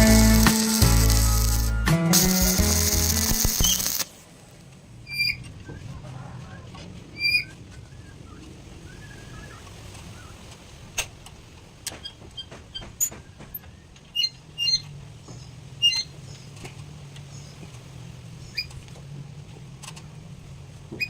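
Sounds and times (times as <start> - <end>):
steady low hum: 0.0 - 4.1.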